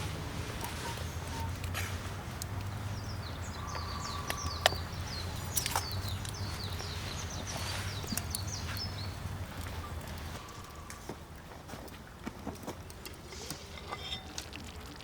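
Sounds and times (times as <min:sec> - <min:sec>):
small birds chirping: 0:02.5 - 0:11.1.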